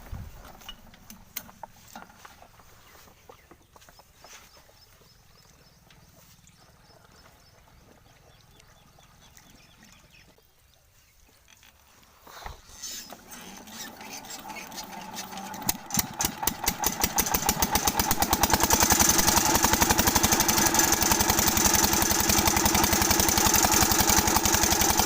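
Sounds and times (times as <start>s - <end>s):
faint diesel engine chugging: 4.2s - 10.4s, 13.0s - 25.0s.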